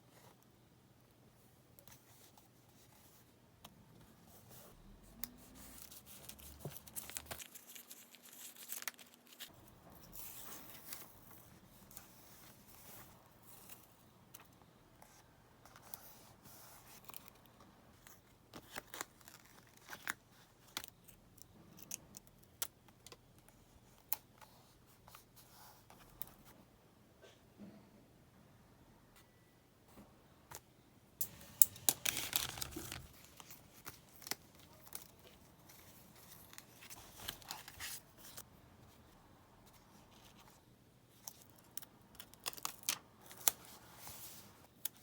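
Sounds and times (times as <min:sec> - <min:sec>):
paper rustling and tearing: 0:05.8 - 0:09.5, 0:31.3 - 0:38.4.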